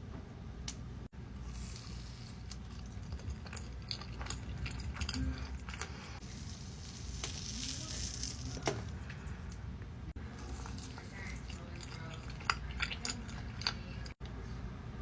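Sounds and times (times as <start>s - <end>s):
crisp food crackles and clicks: 1.4s - 8.6s.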